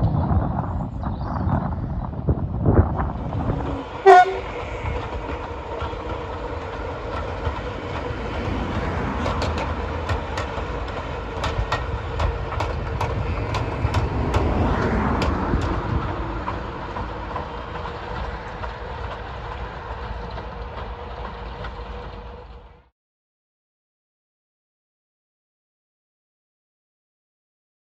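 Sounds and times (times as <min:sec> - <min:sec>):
diesel locomotive engine running: 0:00.1 - 0:22.9
wheels clicking over rail joints: 0:02.2 - 0:22.9.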